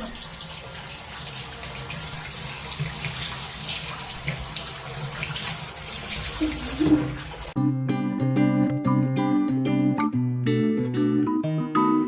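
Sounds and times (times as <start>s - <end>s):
water pouring into bathtub: 0.0s - 7.6s
plucked-string music: 7.6s - 12.0s.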